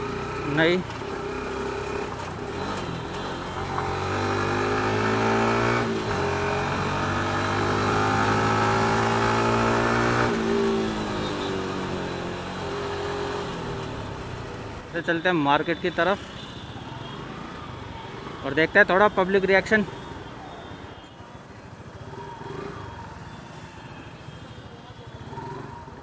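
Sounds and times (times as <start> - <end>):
motorcycle engine accelerating: 1.1 - 14.7.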